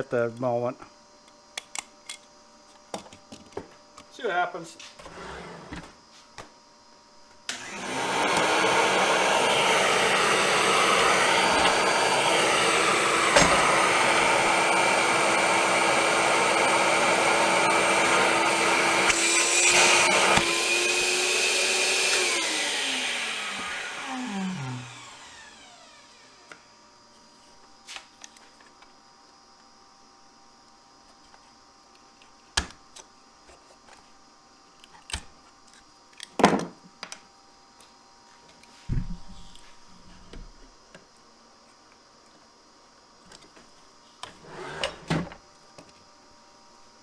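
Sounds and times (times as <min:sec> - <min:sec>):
electric motor running: 0:07.5 - 0:26.4.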